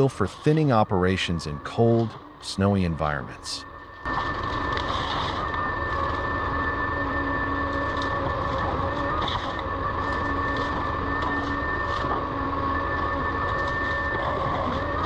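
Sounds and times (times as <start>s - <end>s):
harvester engine drone: 0.0s - 15.0s
high whine: 0.0s - 15.0s.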